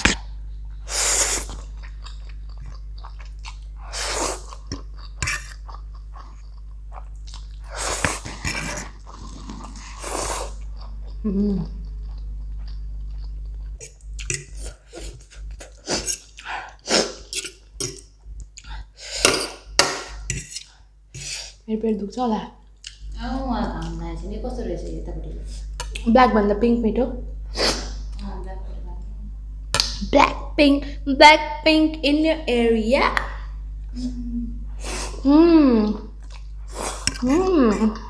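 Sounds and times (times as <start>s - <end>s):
person chewing noodles: 0.0s - 21.6s, 36.1s - 37.6s
fork scraping on plate: 20.3s - 21.3s.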